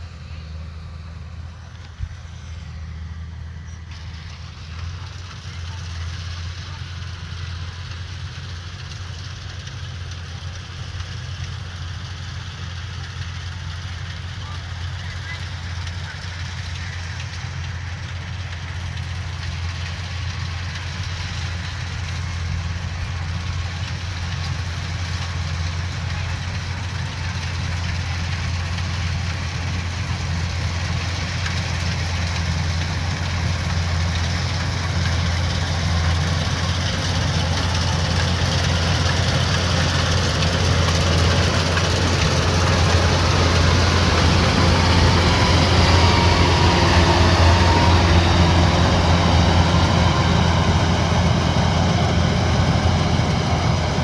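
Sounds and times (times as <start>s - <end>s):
combine harvester engine humming: 0.0s - 54.0s.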